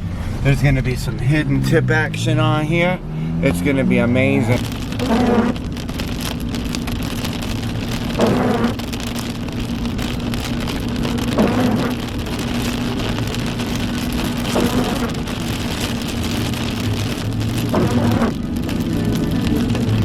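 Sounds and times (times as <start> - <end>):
brief swelling sound: 0.0 - 2.4
car engine and road hum: 0.0 - 20.0
rain on car: 0.0 - 20.0.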